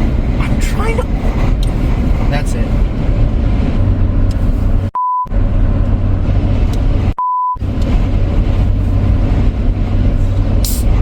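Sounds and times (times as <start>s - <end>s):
car cabin road noise: 0.0s - 11.0s
censor bleep: 5.0s - 5.3s, 7.2s - 7.6s.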